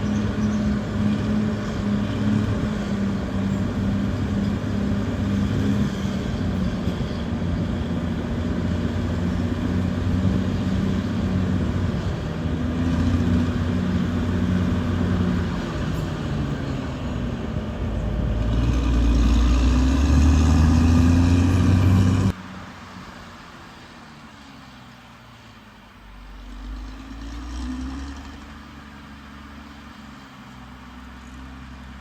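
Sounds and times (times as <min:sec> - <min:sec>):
heavy machine diesel engine running: 0:00.0 - 0:32.0.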